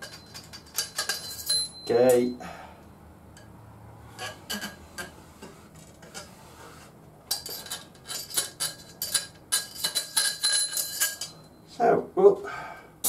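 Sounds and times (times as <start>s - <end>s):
small metal parts clinking: 0.0s - 2.2s, 7.3s - 11.6s.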